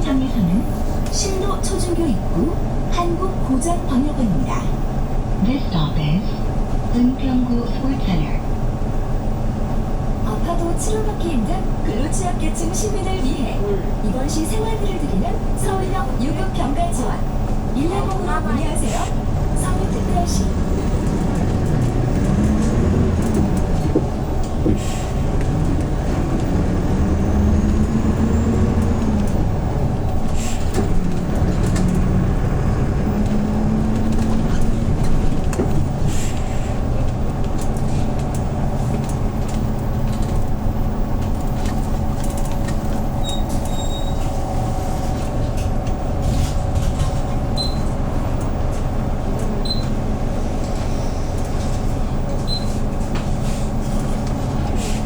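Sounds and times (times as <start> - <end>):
bus engine from inside: 0.0 - 55.0.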